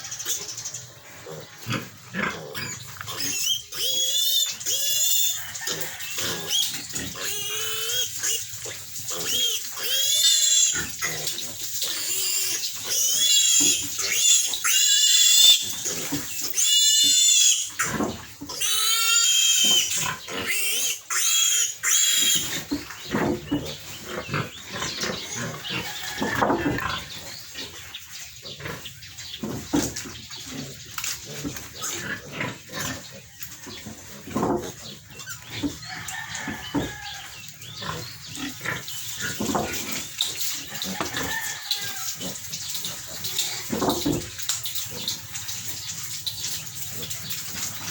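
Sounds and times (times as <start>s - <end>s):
piglet squealing: 2.5s - 8.5s, 9.2s - 11.3s, 11.9s - 22.6s.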